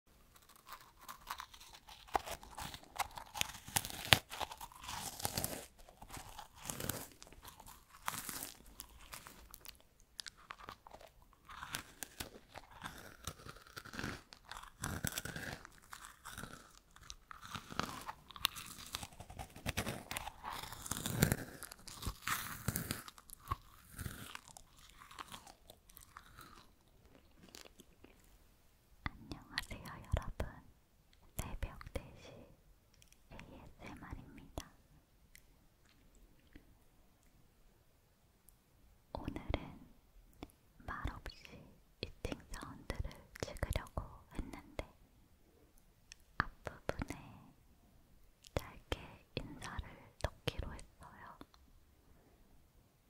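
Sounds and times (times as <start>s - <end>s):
crunching and chewing dry fruit: 0.3s - 28.3s.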